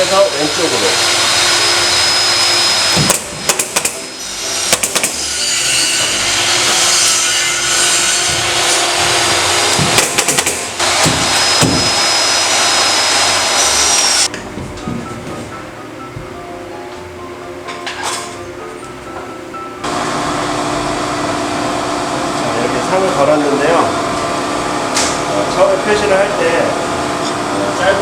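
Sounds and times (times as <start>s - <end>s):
air compressor running: 0.0s - 14.3s, 19.8s - 28.0s
pneumatic nail gun shots: 2.6s - 5.4s, 9.6s - 14.3s.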